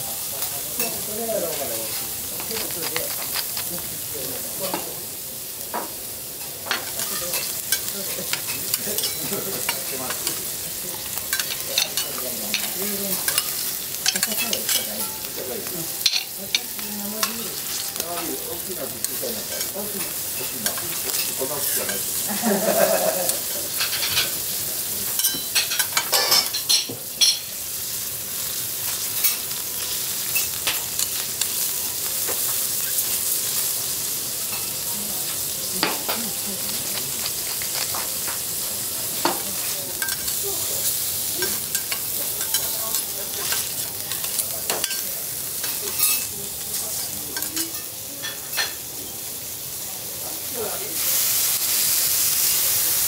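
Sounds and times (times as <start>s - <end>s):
food sizzling on griddle: 0.0s - 53.0s
spatula clicking and scraping: 1.8s - 3.9s, 11.3s - 15.2s, 35.8s - 38.5s, 39.2s - 46.3s.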